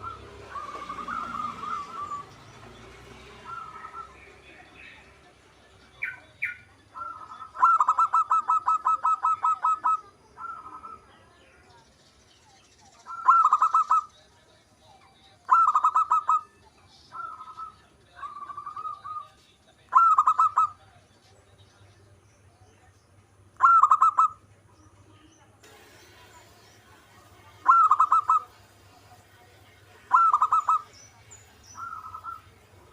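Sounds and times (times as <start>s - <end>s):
dove cooing: 0.0s - 4.3s, 6.9s - 11.1s, 13.0s - 14.1s, 15.4s - 16.5s, 17.1s - 19.3s, 19.9s - 20.8s, 23.6s - 24.4s, 27.2s - 28.8s, 30.0s - 31.0s, 31.8s - 32.9s.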